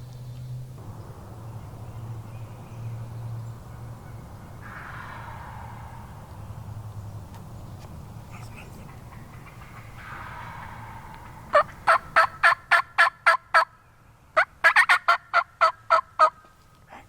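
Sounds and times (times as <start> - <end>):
turkey yelping: 8.3 - 13.7, 14.4 - 16.4.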